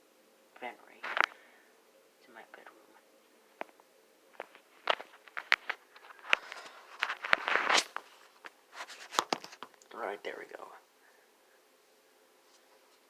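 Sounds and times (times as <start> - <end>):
short rustle: 4.4 - 9.6.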